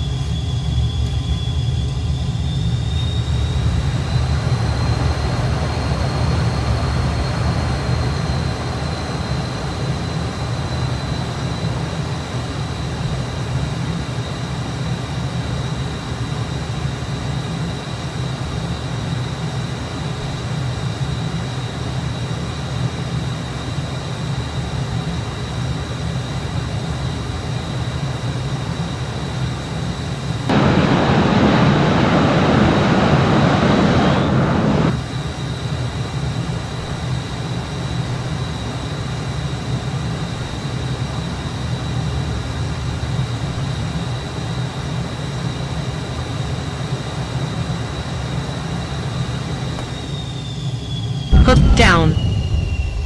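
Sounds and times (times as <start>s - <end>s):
jet engine rumble and whine: 0.0s - 53.0s
loud rushing blast: 51.3s - 53.0s.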